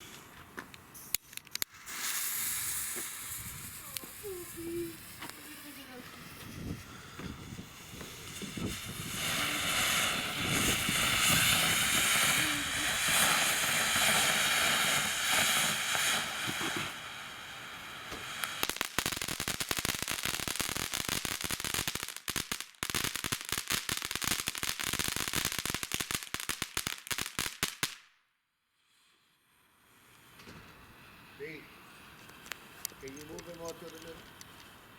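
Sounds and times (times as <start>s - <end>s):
crackling firework pops: 0.0s - 28.1s, 30.0s - 31.2s, 31.9s - 34.9s
firework fountain hissing: 0.9s - 27.9s, 28.8s - 34.9s.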